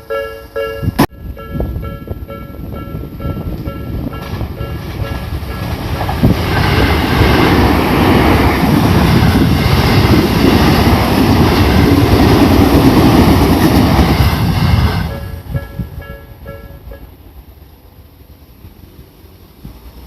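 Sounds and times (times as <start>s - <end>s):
crossing warning bell: 0.0s - 7.3s, 11.3s - 17.4s
train wheels rumbling on rails: 0.0s - 20.0s.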